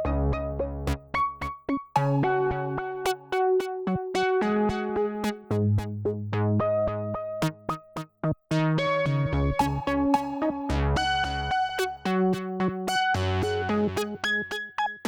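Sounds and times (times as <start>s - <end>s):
electronic music with drum machine: 8.8s - 15.0s.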